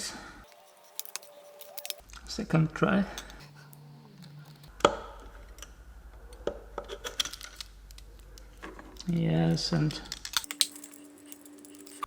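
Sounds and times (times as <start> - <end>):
steel tools clicking and tapping: 0.5 - 2.0, 10.4 - 12.0.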